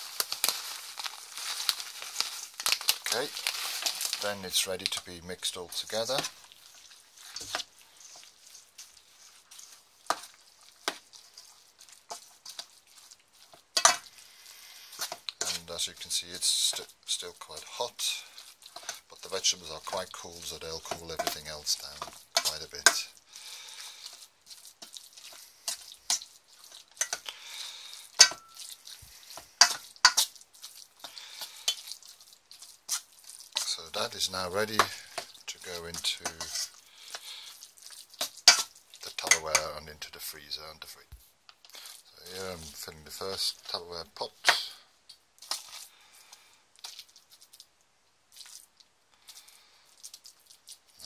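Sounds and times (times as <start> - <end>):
spoon mixing thick food: 0.0 - 40.1, 41.4 - 51.0
spoon scraping and knocking pot: 7.3 - 8.9, 9.6 - 11.5, 13.8 - 14.2, 14.9 - 16.8, 20.8 - 23.1, 27.0 - 27.3, 28.1 - 28.7, 29.3 - 30.3, 34.7 - 37.2, 38.2 - 39.7.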